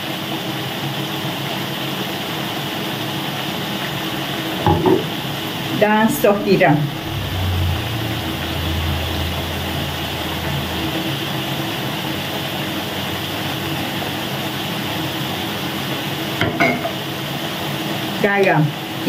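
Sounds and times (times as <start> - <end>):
food sizzling in a wok: 0.0 - 19.0
low hum: 3.6 - 15.5.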